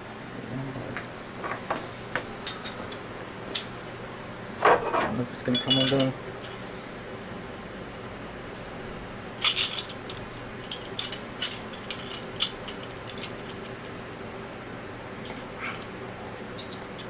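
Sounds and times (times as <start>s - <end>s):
steady low hum: 0.0s - 17.0s
metal tools clinking: 4.6s - 6.6s, 9.4s - 14.0s.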